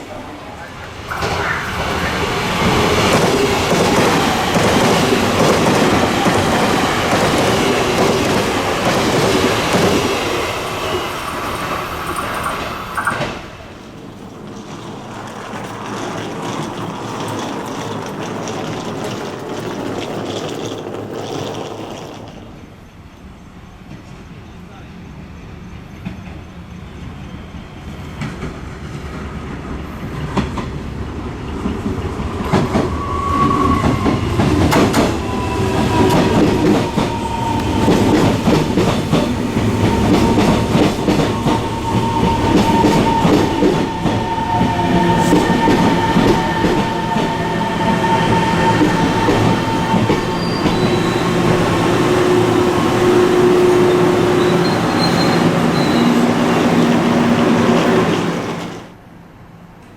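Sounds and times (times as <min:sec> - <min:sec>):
train wheels clacking over rails: 0:00.1 - 0:22.8, 0:28.0 - 0:59.0
high squeal of brakes: 0:32.3 - 0:38.1, 0:39.8 - 0:56.4.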